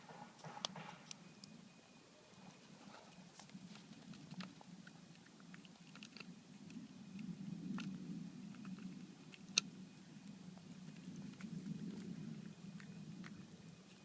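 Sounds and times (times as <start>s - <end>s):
low steady hum: 0.0s - 14.0s
cat chewing food: 2.9s - 14.0s.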